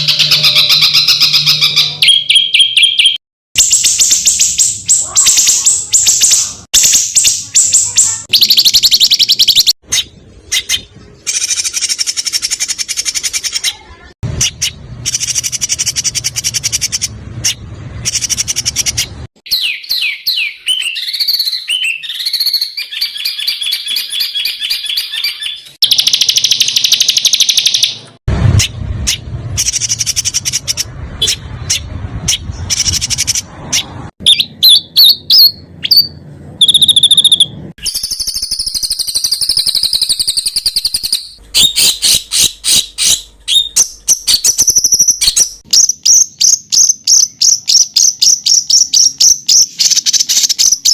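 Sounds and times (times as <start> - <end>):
bird whistles rising and falling: 0.0 - 13.7, 14.4 - 28.0, 34.2 - 50.9
songbirds chattering trills: 0.0 - 27.9.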